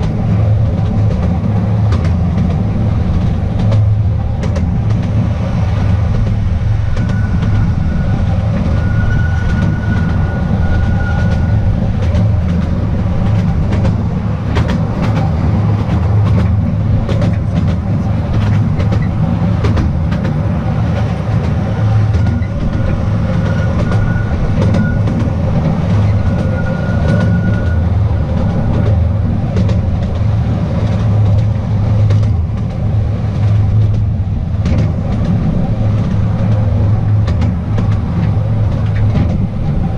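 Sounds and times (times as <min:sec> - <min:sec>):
train cars rumbling: 0:00.0 - 0:39.9
wheels clacking over track: 0:00.0 - 0:39.9
thin high squeal: 0:07.0 - 0:11.6.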